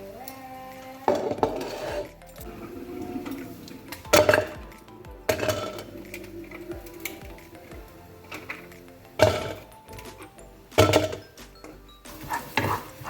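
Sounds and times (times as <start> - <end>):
background music: 0.0 - 13.0
dishes and cutlery clinking: 1.1 - 13.0
sharp dish clatters: 2.6 - 7.6, 8.3 - 12.9.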